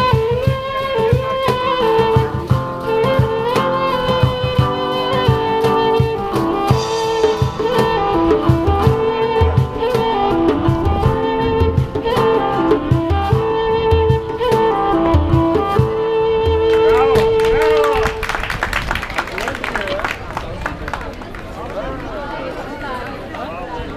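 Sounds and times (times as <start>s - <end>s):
steady drum beat: 0.0s - 17.4s
gliding lead melody: 0.0s - 17.6s.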